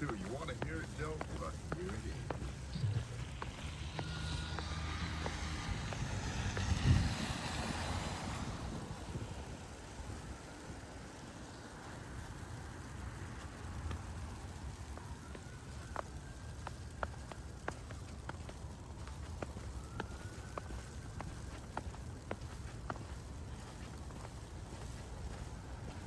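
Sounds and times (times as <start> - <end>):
low rumble: 0.0 - 9.8.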